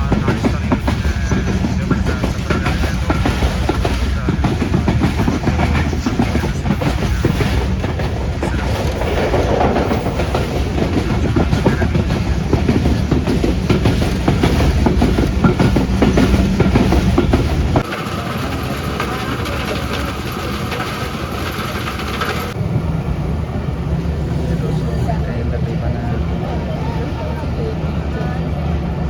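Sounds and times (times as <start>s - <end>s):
train wheels clattering on track: 0.0s - 22.8s.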